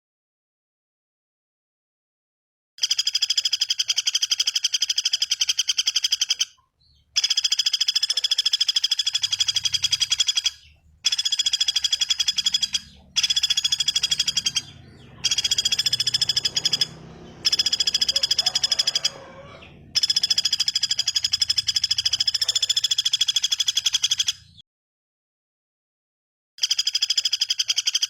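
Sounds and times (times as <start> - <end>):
bird trilling: 2.8 - 24.6.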